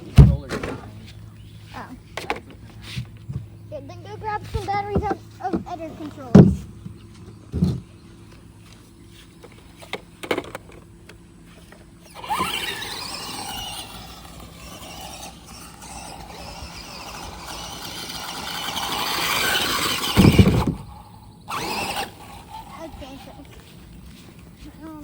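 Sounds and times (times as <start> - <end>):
rc car motor whine: 0.0 - 25.0
car hitting ramp thump: 6.3 - 6.8, 17.7 - 22.1
tyre noise: 11.6 - 25.0.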